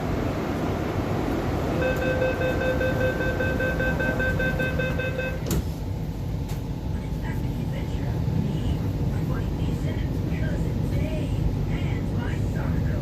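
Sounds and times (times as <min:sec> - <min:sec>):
train rumble: 0:00.0 - 0:13.0
rapid door warning beeps: 0:01.8 - 0:05.6.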